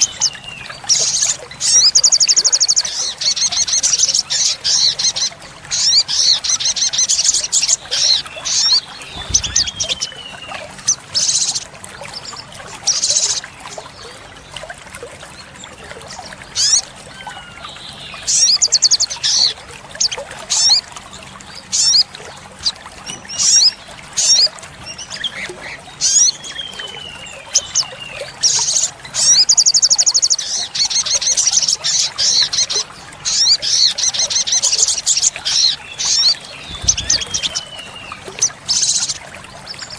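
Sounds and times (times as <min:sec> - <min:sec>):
sunbird chirping and trilling: 0:00.0 - 0:11.7, 0:23.3 - 0:39.9.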